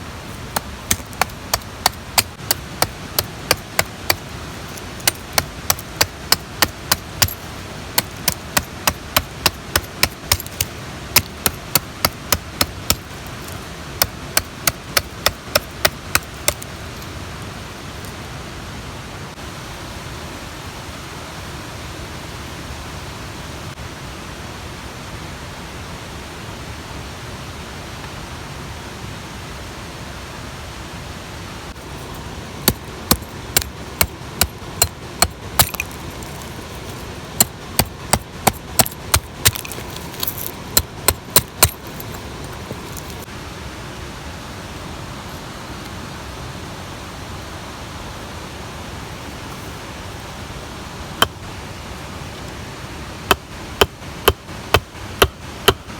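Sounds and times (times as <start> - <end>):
mountain stream rushing: 0.0 - 55.9
sharp knocks: 0.6 - 4.2, 32.7 - 36.4.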